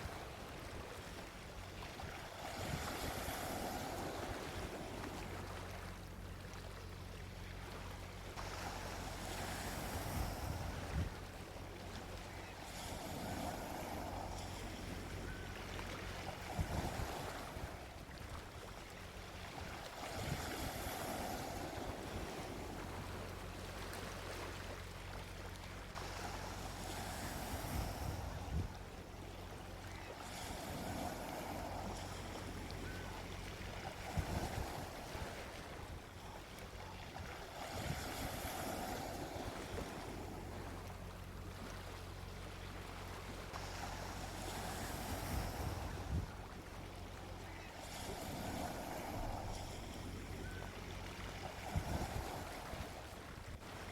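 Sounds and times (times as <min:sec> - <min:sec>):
sea waves washing onto beach: 0:00.0 - 0:53.9
wind buffeting microphone: 0:09.7 - 0:11.2, 0:16.4 - 0:17.9, 0:27.2 - 0:28.8, 0:34.0 - 0:36.0, 0:44.9 - 0:46.5, 0:51.6 - 0:53.9.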